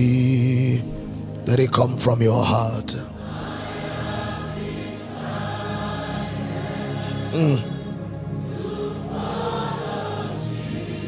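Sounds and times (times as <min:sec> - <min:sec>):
gospel choir and instruments: 0:00.0 - 0:11.0.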